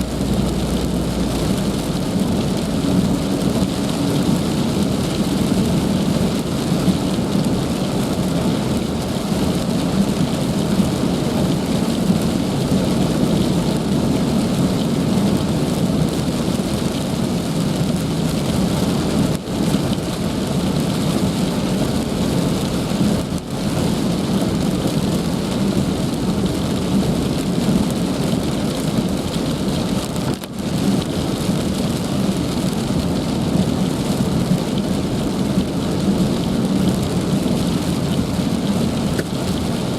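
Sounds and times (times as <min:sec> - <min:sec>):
heavy rain hissing: 0:00.0 - 0:07.2
low rumble: 0:00.0 - 0:07.5.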